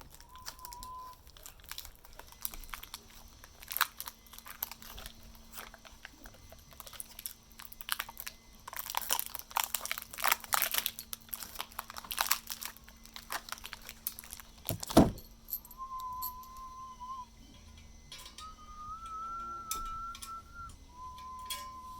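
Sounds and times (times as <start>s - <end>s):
whistled note: 0.0s - 1.2s, 15.0s - 17.5s, 18.1s - 21.9s
rustling and clicking of parts: 0.0s - 16.6s, 17.5s - 21.9s
heavy thump: 14.7s - 15.3s.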